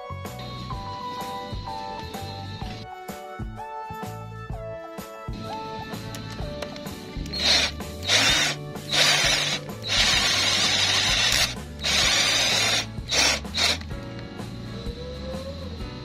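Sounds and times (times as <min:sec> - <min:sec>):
power drill boring into plywood: 0:07.3 - 0:13.9.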